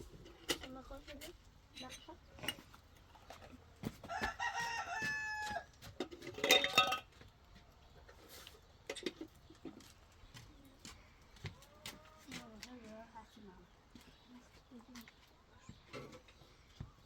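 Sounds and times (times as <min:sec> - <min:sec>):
rooster crowing: 0:04.1 - 0:05.8.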